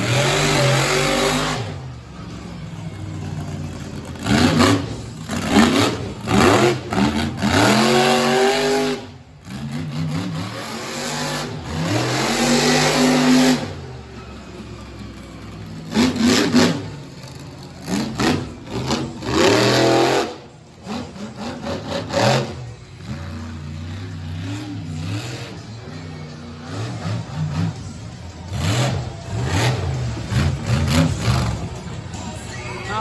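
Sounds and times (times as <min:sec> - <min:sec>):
monster truck engine revving: 0:00.0 - 0:33.0.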